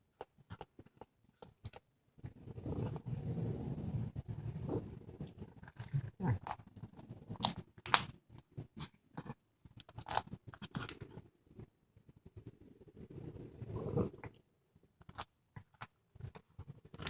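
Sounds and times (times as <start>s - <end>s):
cat chewing and crunching: 0.0s - 3.2s, 4.3s - 11.3s.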